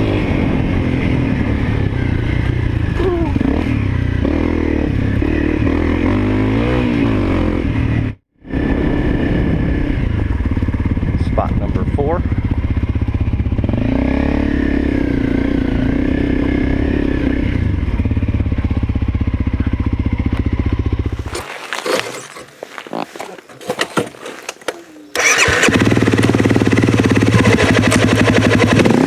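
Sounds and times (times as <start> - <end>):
motorcycle engine running: 7.7 - 29.0
rustling: 21.0 - 25.7.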